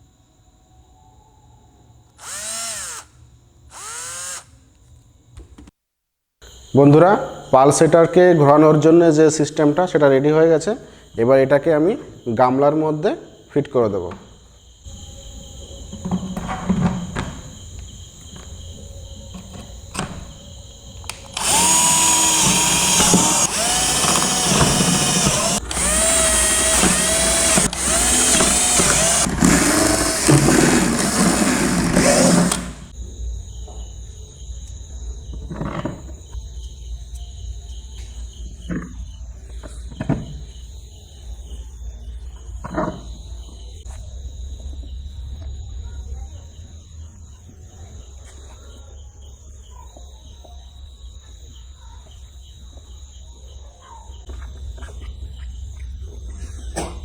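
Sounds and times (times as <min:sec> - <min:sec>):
electric drill running: 0:02.2 - 0:04.6, 0:21.1 - 0:32.9.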